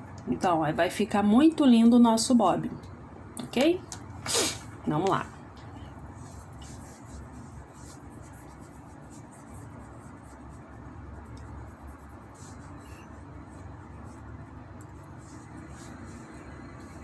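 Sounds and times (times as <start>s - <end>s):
steady low hum: 0.0s - 17.0s
hands rubbing clay: 3.6s - 17.0s.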